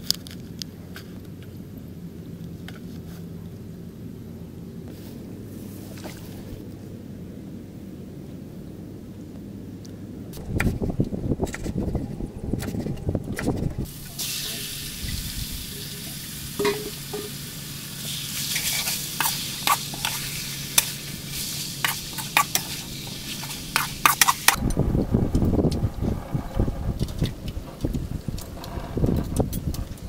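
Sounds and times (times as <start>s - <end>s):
wind rumbling on microphone: 8.6s - 17.2s, 23.0s - 30.0s
food sizzling in a wok: 13.9s - 24.6s
metal spatula scraping a pan: 18.0s - 24.6s.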